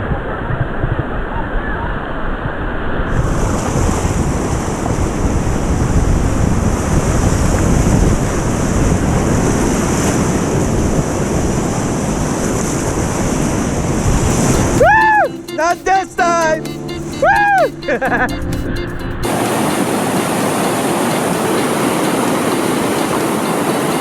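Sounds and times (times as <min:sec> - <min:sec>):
wind buffeting microphone: 0:00.0 - 0:14.8
whitewater rapids rushing: 0:19.2 - 0:24.0.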